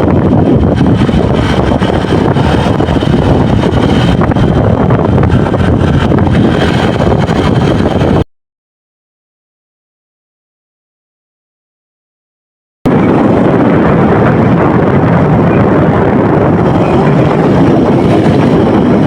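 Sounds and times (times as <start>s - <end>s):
moving vehicle noise: 0.0s - 8.3s, 12.9s - 19.0s
wind buffeting the microphone: 0.0s - 8.3s, 12.9s - 19.0s.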